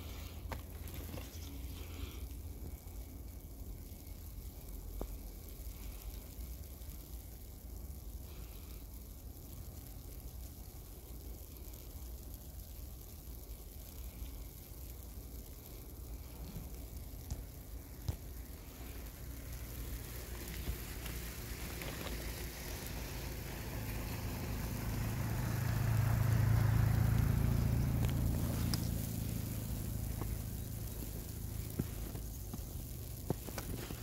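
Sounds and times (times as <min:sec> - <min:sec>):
car passing by: 0:21.2 - 0:30.8.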